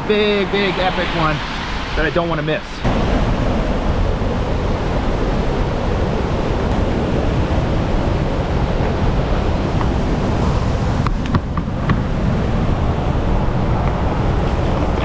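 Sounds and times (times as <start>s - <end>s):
waterfall rushing: 0.0s - 11.4s.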